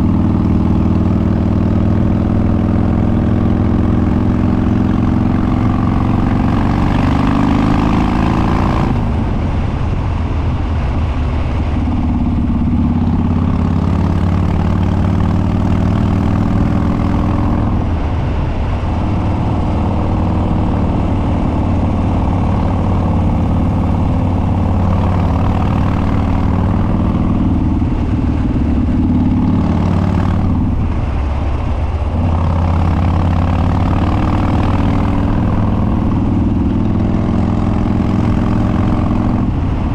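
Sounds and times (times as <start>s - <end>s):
motorcycle engine running loud: 0.0s - 39.9s.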